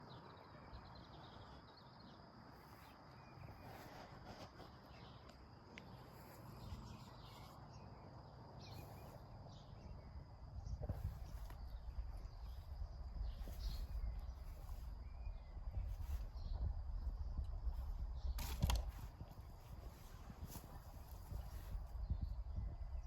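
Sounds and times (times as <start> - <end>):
low wind-like rumble: 4.8 - 23.0.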